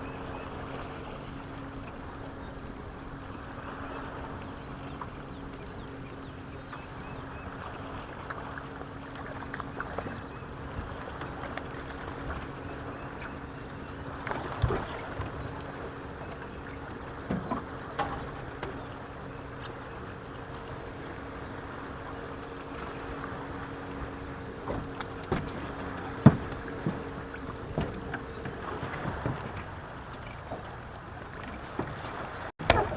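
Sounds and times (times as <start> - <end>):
boat motor humming: 0.0 - 32.9
water: 0.0 - 32.9
knocks against hull: 17.2 - 18.8, 24.6 - 29.7, 32.6 - 32.9.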